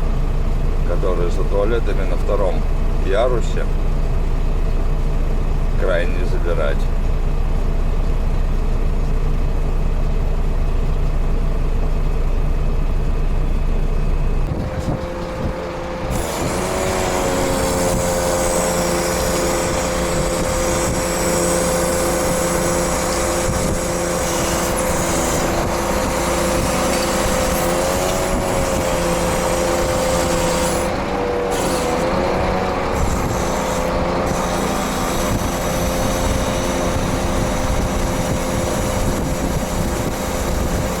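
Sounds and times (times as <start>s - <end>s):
diesel truck engine humming: 0.0s - 41.0s
steady whine with hiss: 13.0s - 41.0s.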